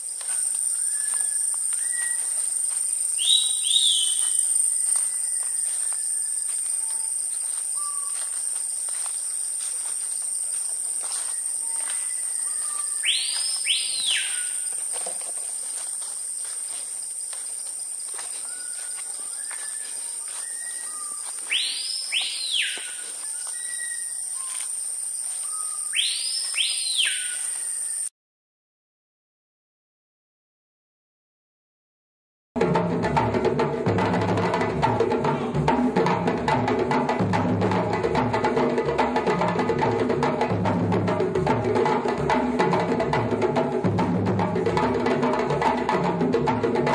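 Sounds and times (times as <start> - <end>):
insects droning: 0.0 - 28.1, 32.6 - 46.9
bird whistled calls: 0.3 - 8.2, 11.2 - 14.7, 18.4 - 24.6, 25.4 - 28.1.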